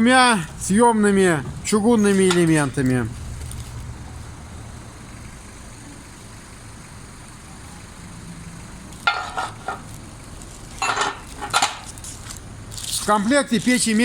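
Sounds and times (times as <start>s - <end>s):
steady low hum: 0.0s - 14.0s
sharp knocks and clatters: 9.0s - 10.0s, 10.7s - 12.1s.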